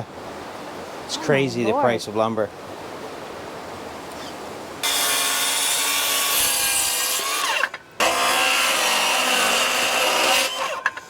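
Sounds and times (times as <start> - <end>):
power saw cutting wood: 4.8 - 11.0.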